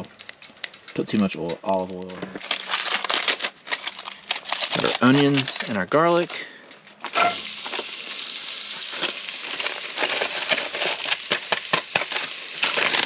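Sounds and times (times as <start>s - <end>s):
crackling of frying food: 0.0s - 13.0s
onions sizzling in hot oil: 7.2s - 13.0s.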